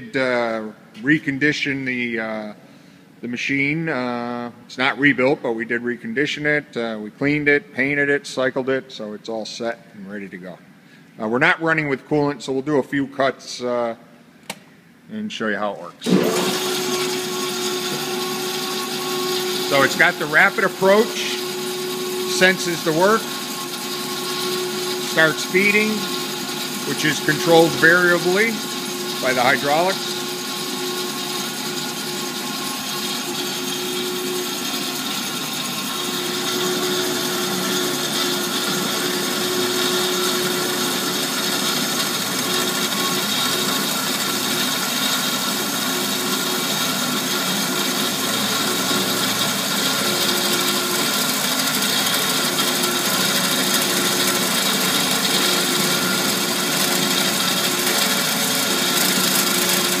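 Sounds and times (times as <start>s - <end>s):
band saw cutting metal: 16.0s - 60.0s.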